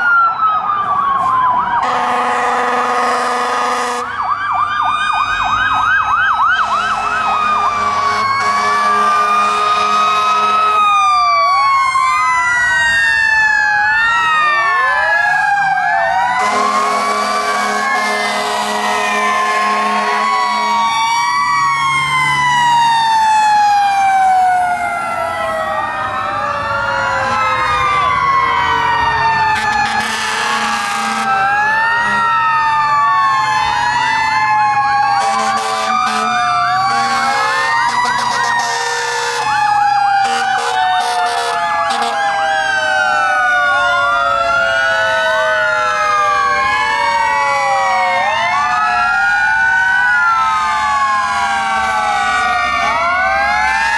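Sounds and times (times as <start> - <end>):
electronic sirens wailing: 0.0 - 53.9
air horn blasts: 1.8 - 4.2, 6.6 - 10.9, 16.4 - 20.8, 29.6 - 31.4, 35.2 - 39.5, 40.2 - 42.7.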